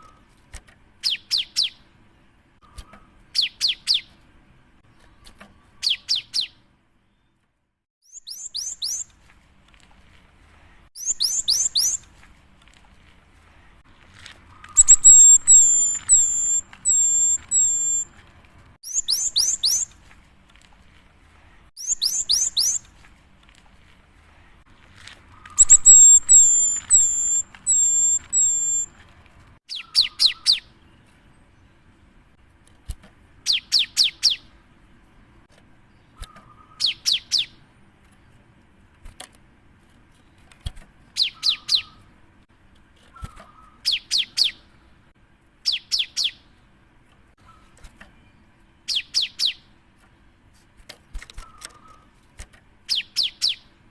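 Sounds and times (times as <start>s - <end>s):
bird singing whistled phrases: 2.6s - 4.1s, 5.8s - 6.6s, 8.0s - 9.1s, 11.0s - 12.0s, 14.7s - 18.1s, 18.8s - 19.9s, 21.8s - 22.8s, 25.4s - 28.9s, 29.7s - 30.7s, 41.2s - 42.0s.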